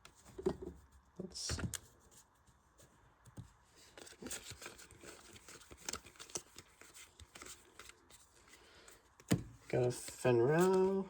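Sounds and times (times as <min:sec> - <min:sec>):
cards clicking and rustling: 0:03.3 - 0:11.0.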